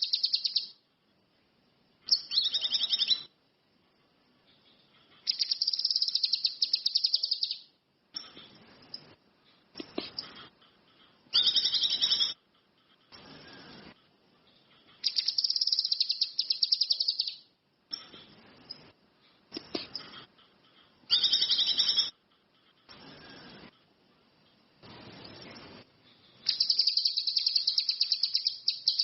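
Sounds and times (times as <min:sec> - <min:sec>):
songbird chattering trills: 0:00.0 - 0:00.8, 0:02.1 - 0:03.3, 0:04.5 - 0:08.4, 0:14.5 - 0:18.1, 0:26.4 - 0:29.0.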